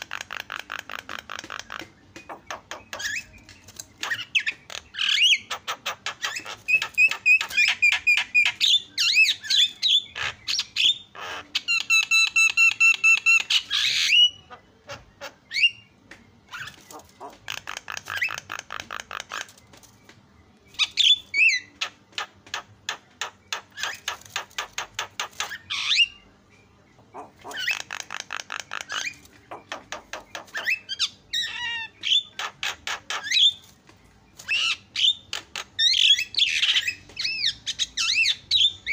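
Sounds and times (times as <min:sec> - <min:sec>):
bird clicking chatter: 0:00.0 - 0:08.6, 0:16.6 - 0:20.0, 0:27.1 - 0:30.9.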